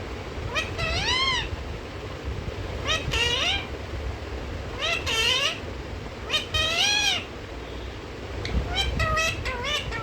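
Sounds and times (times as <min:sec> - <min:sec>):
parrot calling: 0:00.4 - 0:01.6, 0:02.8 - 0:03.8, 0:04.7 - 0:10.0.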